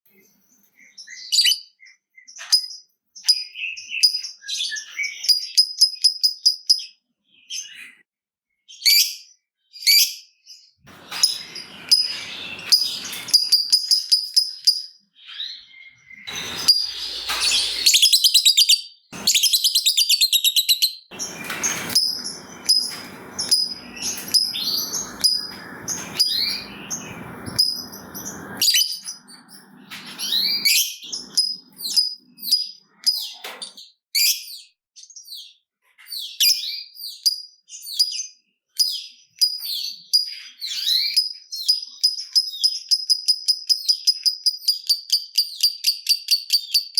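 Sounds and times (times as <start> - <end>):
lovebirds chattering: 10.9 - 14.8, 16.2 - 32.6.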